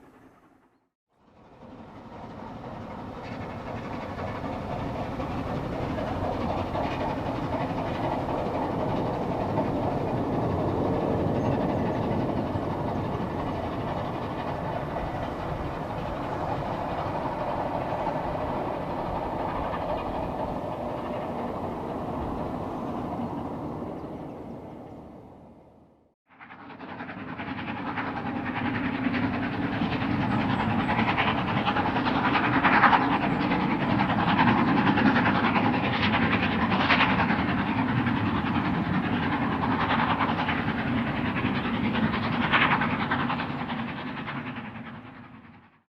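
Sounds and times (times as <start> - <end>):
steam train passing: 0.0 - 25.8, 26.4 - 45.8.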